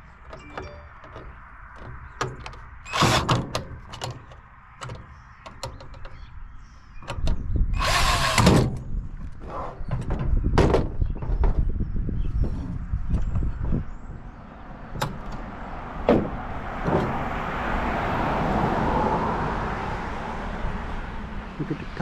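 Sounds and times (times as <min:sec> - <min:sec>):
power drill backing out screws: 0:02.8 - 0:04.1, 0:07.8 - 0:08.8.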